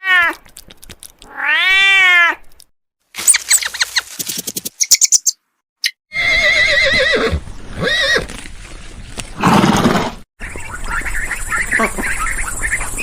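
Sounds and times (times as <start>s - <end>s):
horse neighing: 6.1s - 8.3s.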